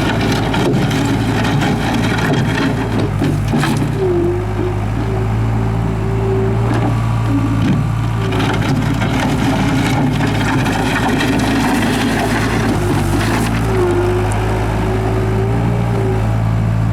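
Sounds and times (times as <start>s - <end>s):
knocks and clanks: 0.0s - 5.4s, 6.6s - 14.3s
diesel engine running: 0.0s - 16.9s.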